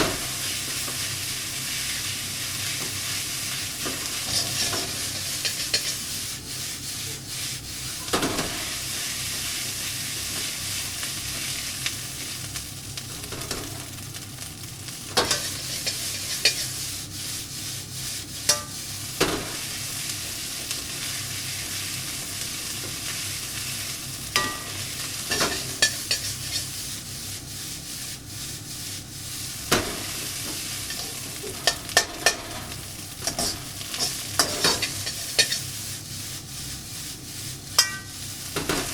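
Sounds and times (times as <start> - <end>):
rice sizzling in a pan: 0.0 - 38.9
spatula knocking and scraping pan: 3.8 - 6.1, 8.0 - 8.7, 15.1 - 16.8, 18.4 - 19.6, 24.4 - 26.7, 29.7 - 35.7, 37.8 - 38.9.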